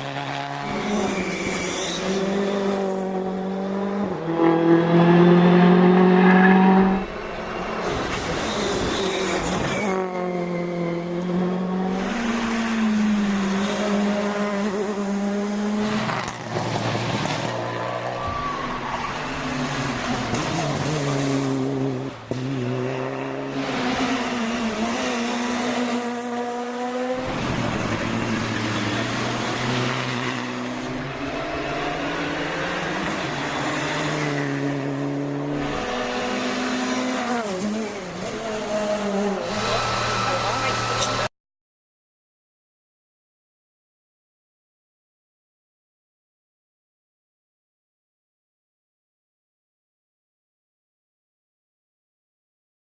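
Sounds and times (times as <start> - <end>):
rally car engines revving: 0.0 - 41.3.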